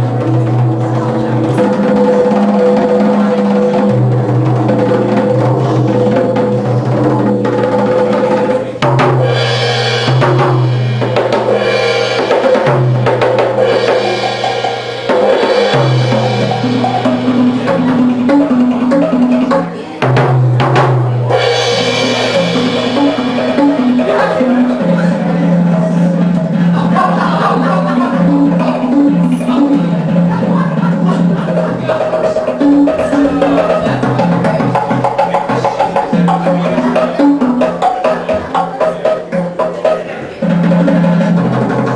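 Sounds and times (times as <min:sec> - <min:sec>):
low bass notes: 0:00.0 - 0:31.9
drums: 0:00.0 - 0:41.9.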